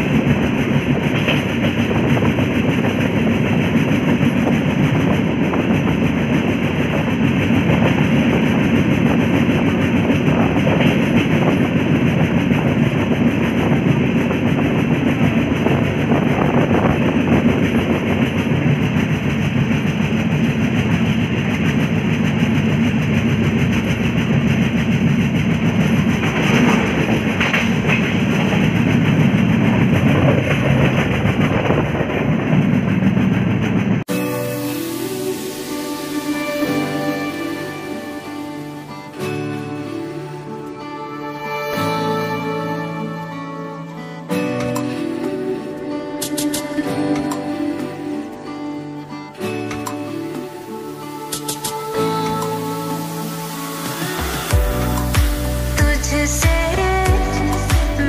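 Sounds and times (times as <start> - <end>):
train wheels clattering: 0.0 - 40.2
train wheels rumbling on rails: 0.0 - 58.0.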